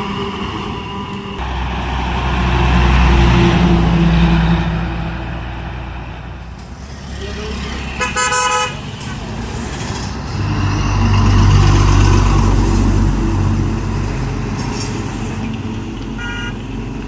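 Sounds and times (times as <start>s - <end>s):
truck diesel engine rumbling past: 0.1s - 17.0s
vehicle horn blast: 7.9s - 9.0s, 16.2s - 16.6s.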